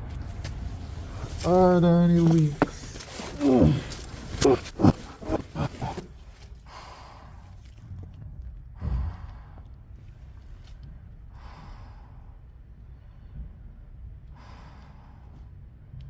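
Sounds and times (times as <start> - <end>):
man breathing heavily: 0.2 - 7.8, 8.8 - 10.0, 11.3 - 13.6, 14.3 - 15.8.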